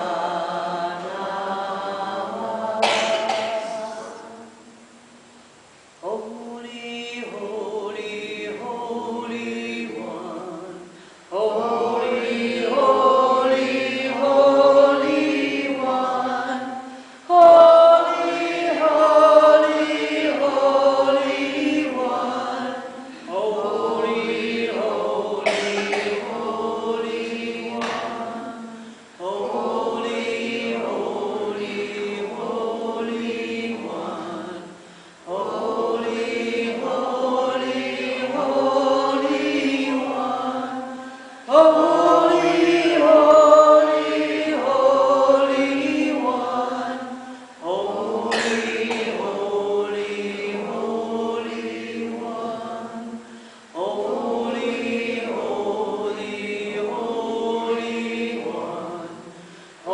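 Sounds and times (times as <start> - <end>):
group of voices chanting: 0.0 - 4.4, 17.3 - 34.5.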